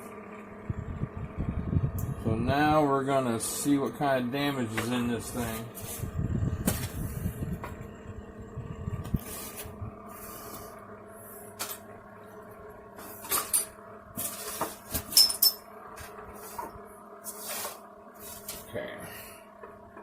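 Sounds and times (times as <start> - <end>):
steady low hum: 0.0 - 20.0
sharp metallic clinks: 15.1 - 15.6.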